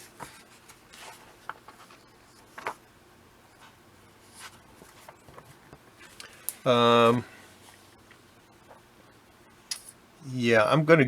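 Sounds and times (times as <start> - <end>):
paper pages rustling: 0.0 - 2.8, 3.6 - 6.4.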